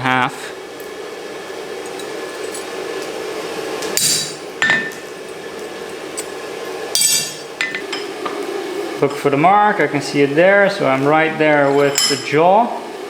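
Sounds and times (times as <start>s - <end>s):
steady hum: 0.0s - 13.0s
metal-on-metal clanks: 7.0s - 7.8s.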